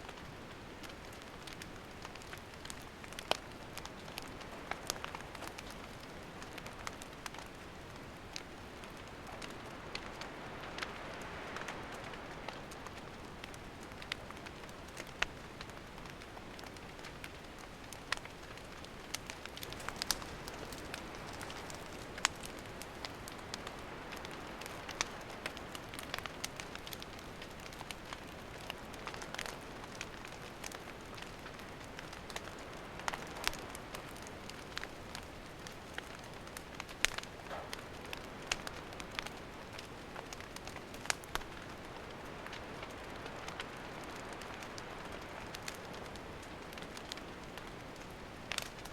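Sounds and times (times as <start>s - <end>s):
campfire crackling and hissing: 0.0s - 48.9s.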